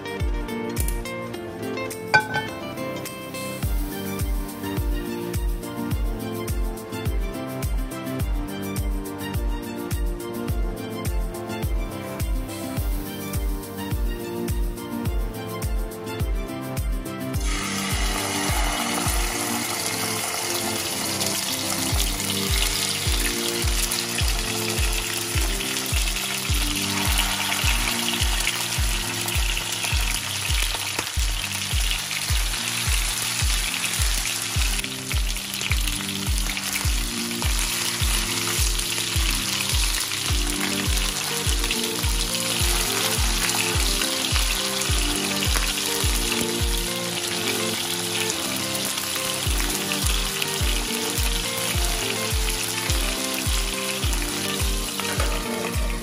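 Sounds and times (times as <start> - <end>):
background music with beat: 0.0 - 56.0
chicken sizzling in hot oil: 3.5 - 5.6, 12.8 - 14.3, 17.4 - 56.0.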